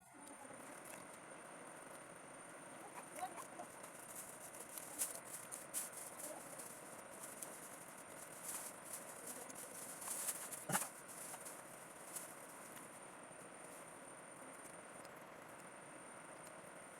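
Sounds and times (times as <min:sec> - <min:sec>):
small parts clicking and rustling: 0:03.2 - 0:12.9.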